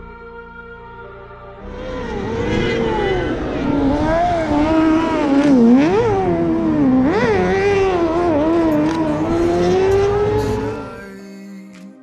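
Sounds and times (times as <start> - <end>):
car engine revving: 1.6 - 11.0.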